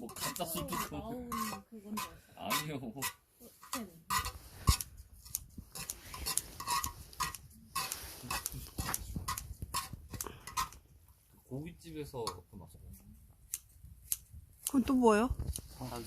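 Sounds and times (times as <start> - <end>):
utensils scraping on metal lid: 0.0 - 4.9, 5.8 - 10.8.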